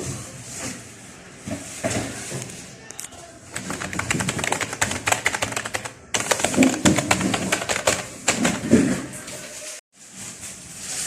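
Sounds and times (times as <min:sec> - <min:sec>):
fast typing on keyboard: 0:03.5 - 0:08.8.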